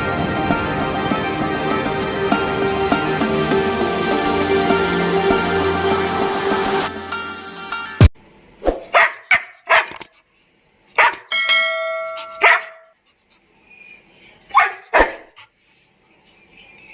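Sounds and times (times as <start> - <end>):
bell-like ringing tone: 0.0 - 8.1, 11.3 - 12.4
dog barking: 8.8 - 10.0, 11.0 - 11.3, 12.1 - 12.9, 14.5 - 15.5.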